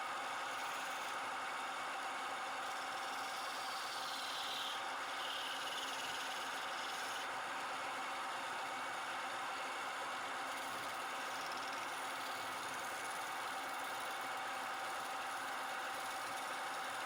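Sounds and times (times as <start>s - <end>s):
wood lathe running: 3.4s - 7.2s.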